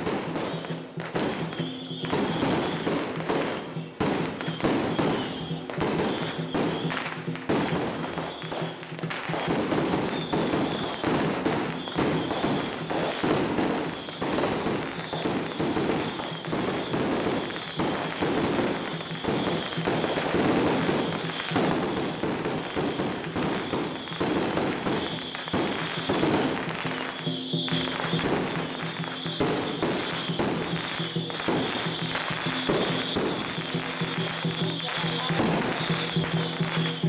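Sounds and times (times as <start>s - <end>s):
firecrackers crackling: 0.0s - 37.0s.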